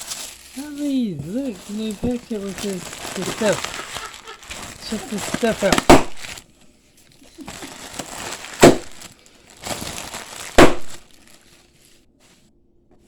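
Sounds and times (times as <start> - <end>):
packing material crackling: 0.0 - 12.0
sharp loud cracks: 5.6 - 6.4, 8.5 - 9.0, 10.5 - 11.1.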